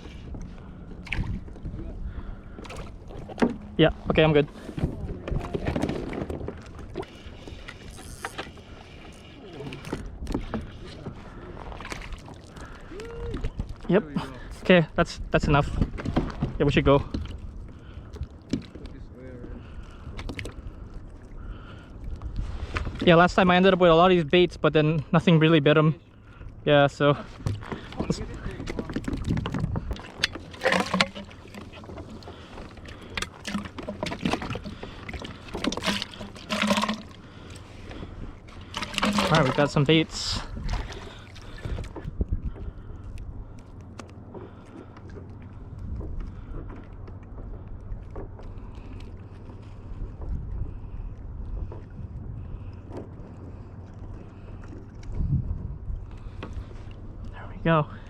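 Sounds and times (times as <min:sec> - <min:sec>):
wind buffeting microphone: 0:00.0 - 0:08.6, 0:26.5 - 0:30.6, 0:37.1 - 0:43.6, 0:45.4 - 0:48.8, 0:49.6 - 0:57.7
water splashing around a hull: 0:00.0 - 0:58.0.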